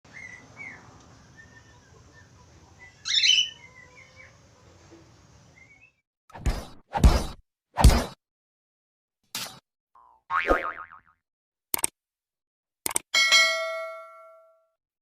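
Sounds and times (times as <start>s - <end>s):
budgerigar chirping: 0.1s - 0.8s, 1.4s - 4.4s.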